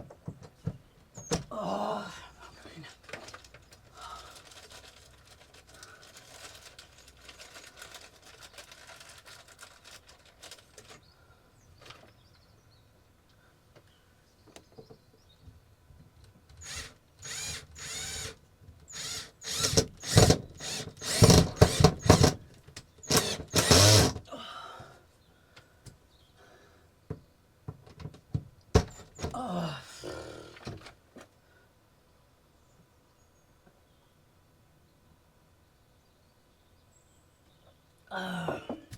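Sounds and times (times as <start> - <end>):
electric screwdriver driving screws: 16.6 - 22.4, 23.0 - 24.2.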